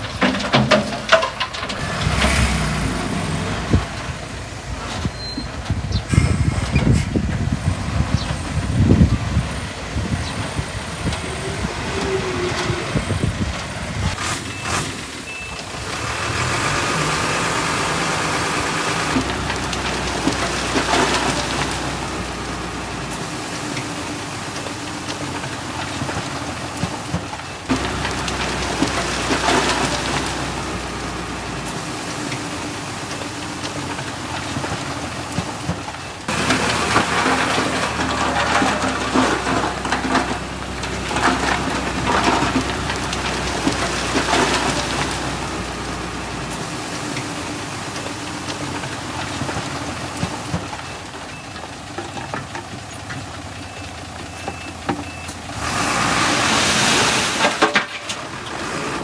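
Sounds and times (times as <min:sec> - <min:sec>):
loose soil and stone rattling: 0:00.0 - 0:14.2, 0:33.0 - 0:50.9
diesel engines running: 0:00.0 - 0:14.8, 0:15.7 - 0:59.0.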